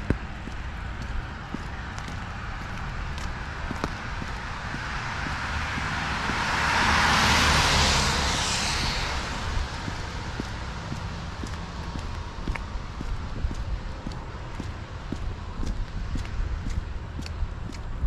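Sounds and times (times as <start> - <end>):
car tyres hissing on wet road: 4.7 - 12.3.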